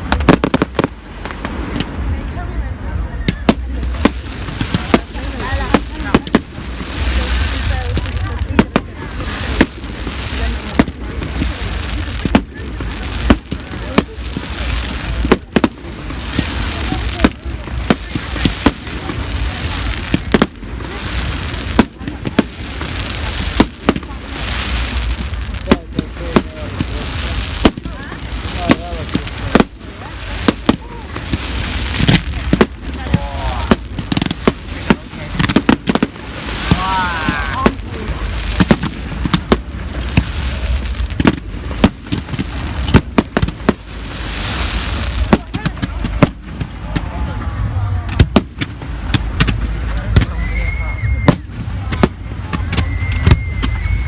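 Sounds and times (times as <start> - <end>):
crowd noise: 0.0 - 54.0
fireworks bangs: 0.0 - 54.0.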